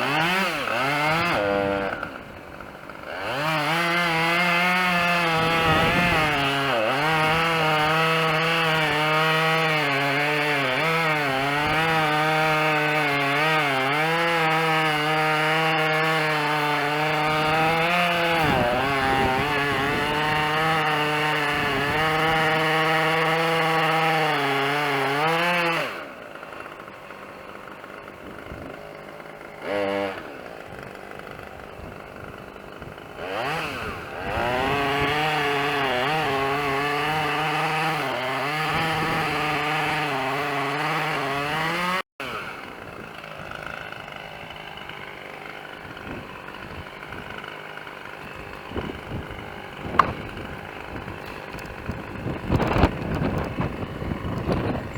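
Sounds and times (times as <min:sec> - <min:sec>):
chainsaw cutting wood: 0:00.0 - 0:54.9
sharp knocks: 0:49.9 - 0:50.4.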